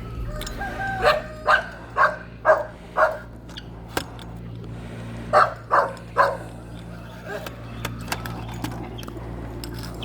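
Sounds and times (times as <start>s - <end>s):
dog barking: 1.0s - 3.2s, 5.3s - 6.4s.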